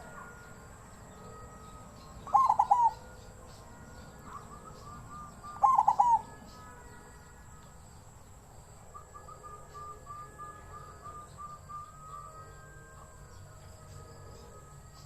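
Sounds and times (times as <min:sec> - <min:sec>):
dove cooing: 0:01.2 - 0:06.5.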